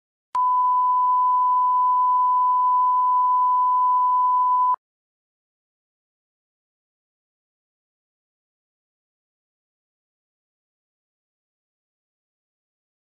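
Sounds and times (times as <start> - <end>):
test-tone beep: 0.4 - 4.8.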